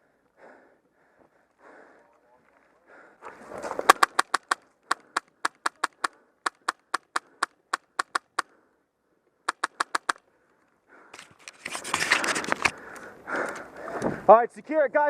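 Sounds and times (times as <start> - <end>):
airsoft gun shots: 3.9 - 8.4.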